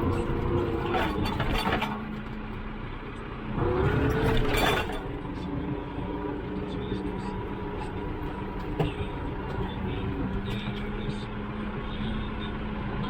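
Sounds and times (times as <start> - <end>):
knocks and rattles: 0.0 - 2.4, 3.9 - 5.4, 7.2 - 10.9
tractor engine running: 0.0 - 13.0.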